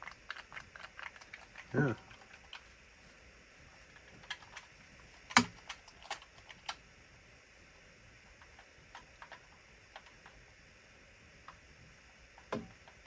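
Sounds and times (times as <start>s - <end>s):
hard plastic clicking and tapping: 12.4s - 13.0s.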